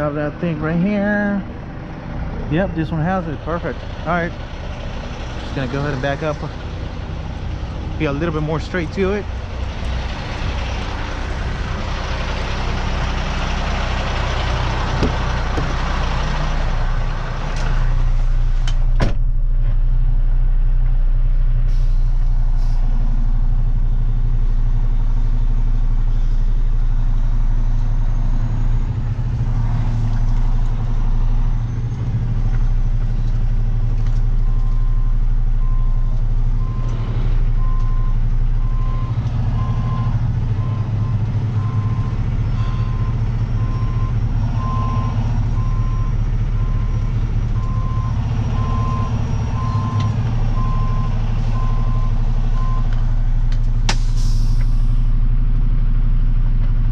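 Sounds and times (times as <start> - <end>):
truck engine running: 0.0 - 56.9
air brakes hissing: 21.7 - 22.9, 53.9 - 55.1
reversing alarm beeping: 37.6 - 52.9.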